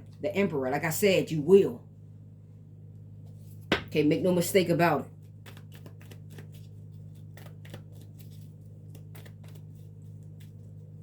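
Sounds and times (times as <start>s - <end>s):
steady low hum: 0.0s - 11.0s
cards being flicked: 5.4s - 6.6s, 7.3s - 9.7s.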